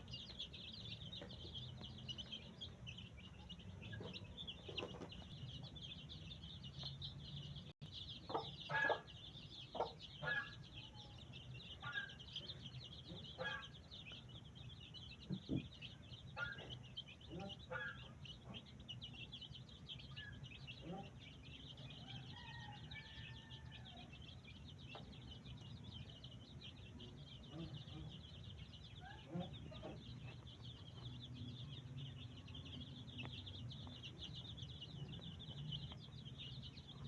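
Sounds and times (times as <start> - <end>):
fowl clucking: 8.3 - 9.1, 13.1 - 13.7.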